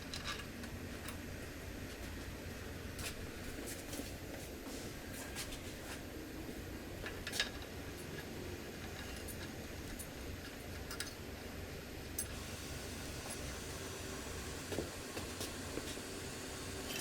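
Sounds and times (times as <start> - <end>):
steady low hum: 0.0 - 17.0
light metallic clicks and clinks: 7.0 - 11.2.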